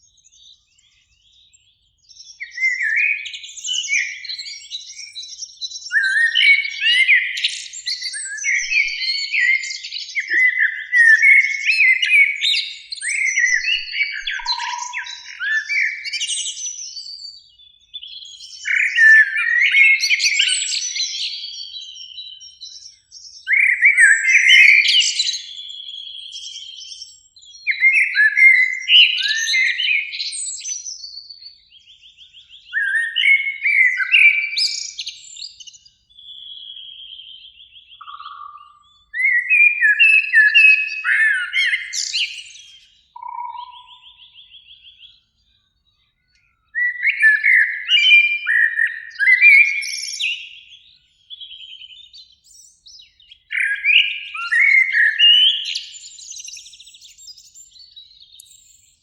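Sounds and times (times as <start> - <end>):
blackbird singing: 0.0 - 59.0.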